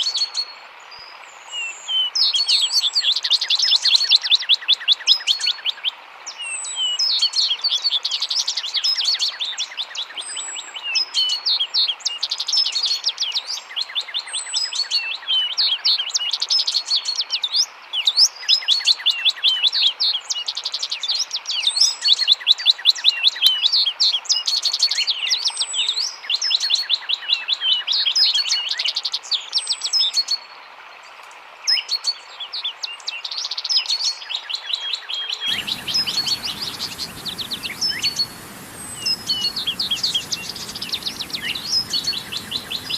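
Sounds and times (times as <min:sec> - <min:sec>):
running water hiss: 0:35.5 - 0:42.9
small birds chirping: 0:35.5 - 0:42.9.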